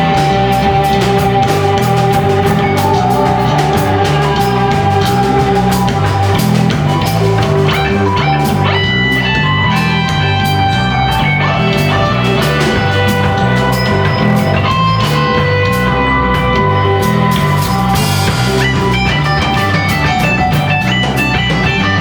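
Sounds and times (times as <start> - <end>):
repeating bass line: 0.0 - 22.0
steady drum kit beat: 0.0 - 22.0
sustained guitar notes: 0.0 - 22.0.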